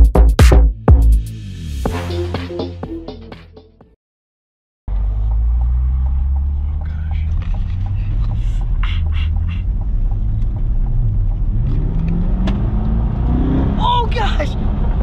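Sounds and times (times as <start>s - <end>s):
car engine and road drone: 1.2s - 2.0s, 4.9s - 15.0s.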